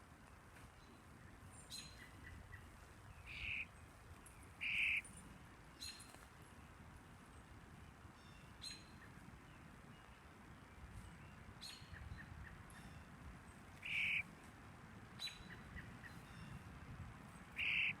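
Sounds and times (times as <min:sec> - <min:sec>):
faint bird chirps: 0:00.9 - 0:03.7, 0:04.6 - 0:05.2, 0:13.8 - 0:14.2, 0:17.5 - 0:18.0
harsh rasping bird calls: 0:03.2 - 0:03.7, 0:04.6 - 0:05.1, 0:13.8 - 0:14.2, 0:17.5 - 0:18.0.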